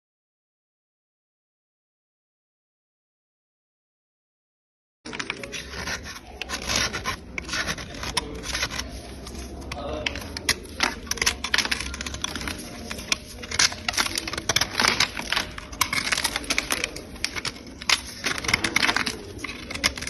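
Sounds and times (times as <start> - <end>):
clay crust scraped and chipped: 5.1 - 20.0.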